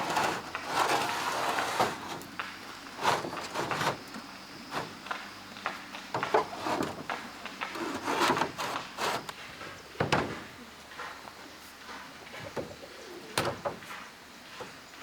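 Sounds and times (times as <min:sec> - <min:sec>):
hand tool scrapes and knocks: 0:00.0 - 0:09.4.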